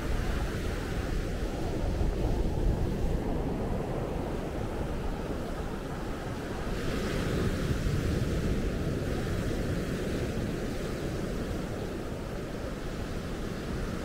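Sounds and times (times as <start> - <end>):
surf washing on beach: 0.0 - 14.0
wind buffeting microphone: 0.0 - 14.0.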